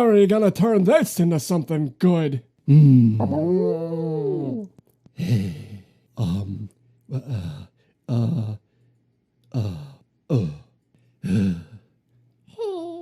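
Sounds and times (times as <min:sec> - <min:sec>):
man sighing: 0:02.7 - 0:08.6, 0:09.5 - 0:11.8.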